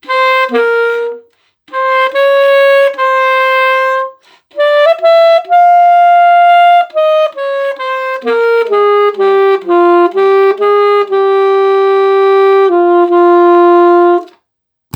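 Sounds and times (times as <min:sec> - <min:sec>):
alto saxophone melody: 0:00.0 - 0:14.3.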